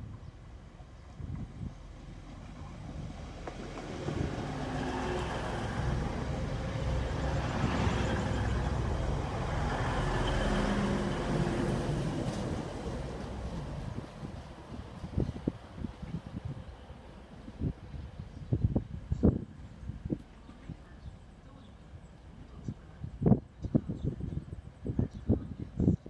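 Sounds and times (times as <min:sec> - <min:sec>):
diesel train rumbling past: 0:00.0 - 0:23.3.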